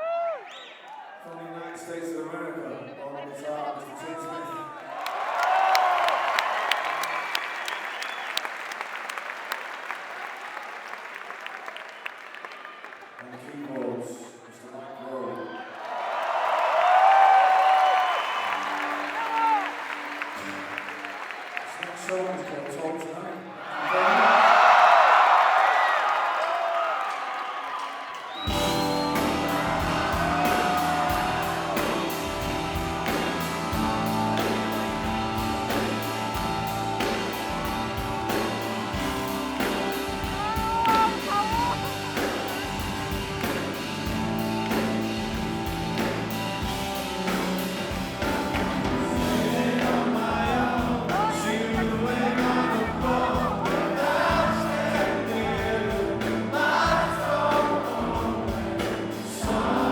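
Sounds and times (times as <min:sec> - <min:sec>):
crowd singing along: 0:28.5 - 0:36.4, 0:48.8 - 0:59.9
live rock band playing: 0:28.5 - 0:59.9.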